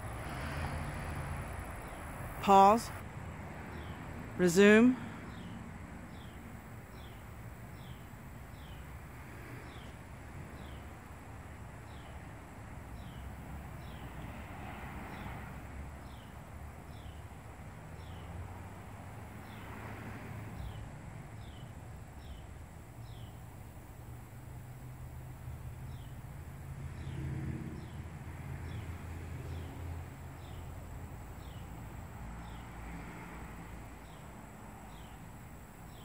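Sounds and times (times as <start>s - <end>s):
faint outdoor background noise: 0.0s - 36.0s.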